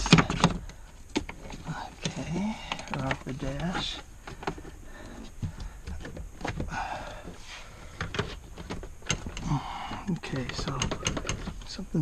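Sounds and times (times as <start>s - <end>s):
plastic trim clicks and knocks: 10.4s - 11.6s.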